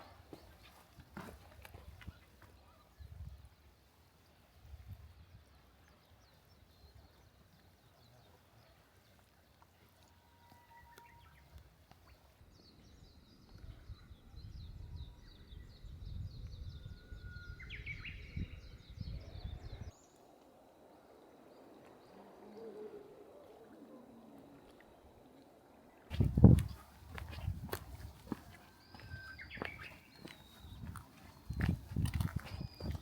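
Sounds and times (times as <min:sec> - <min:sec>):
small birds chirping: 0:26.1 - 0:33.0.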